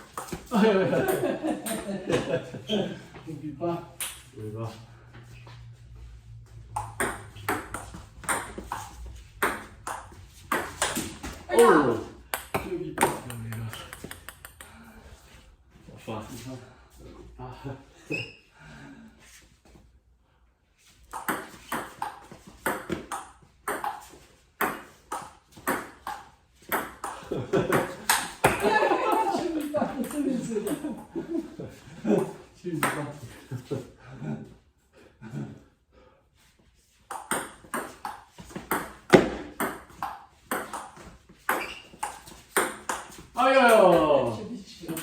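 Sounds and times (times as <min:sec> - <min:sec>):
table tennis ball clicking: 0:12.4 - 0:14.7.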